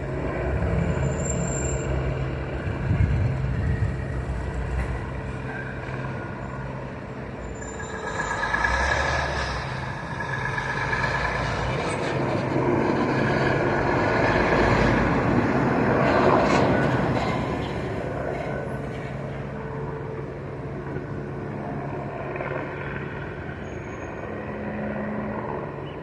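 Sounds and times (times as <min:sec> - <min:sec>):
helicopter rotor and engine drone: 0:00.0 - 0:26.0.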